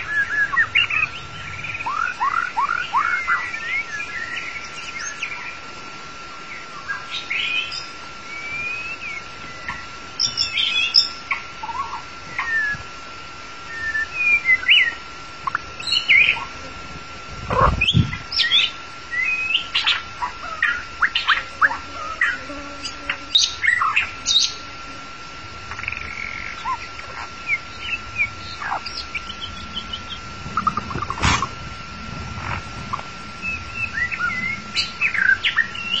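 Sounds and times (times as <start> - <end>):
bird singing whistled notes: 0.0 - 5.6, 6.5 - 12.8, 13.6 - 16.5, 17.8 - 20.0, 25.8 - 30.8, 33.4 - 36.0
thin steady whine: 0.0 - 36.0.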